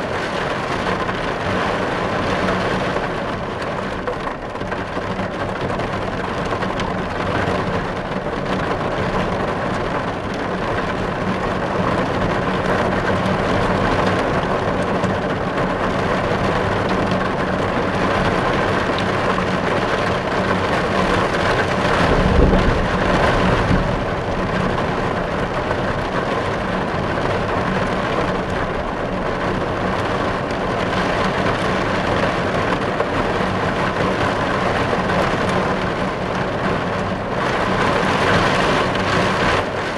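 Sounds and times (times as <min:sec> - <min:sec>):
heavy rain on car glass: 0:00.0 - 0:39.9
short low rumble: 0:21.9 - 0:25.6.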